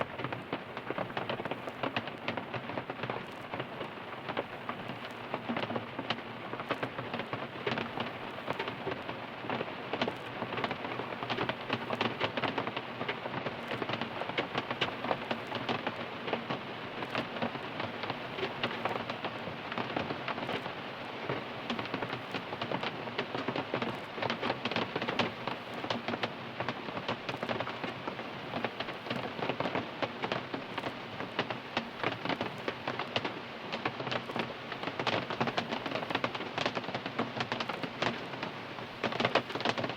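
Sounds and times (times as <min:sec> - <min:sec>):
rain pattering on car roof: 0:00.0 - 0:39.9.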